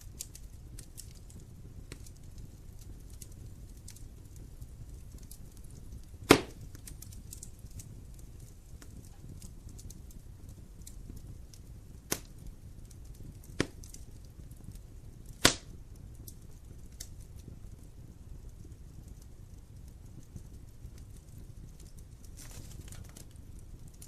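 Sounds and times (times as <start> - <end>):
burning wood snapping: 0.0 - 24.0
low rumble of flame: 0.0 - 24.0
logs crackling: 0.1 - 10.1, 10.8 - 14.1, 15.2 - 17.1, 21.8 - 23.4.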